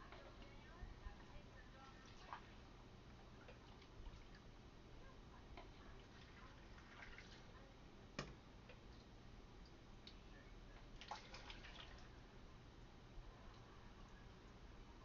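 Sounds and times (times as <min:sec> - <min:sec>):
liquid trickling and dripping: 0:06.0 - 0:07.6, 0:11.0 - 0:12.2.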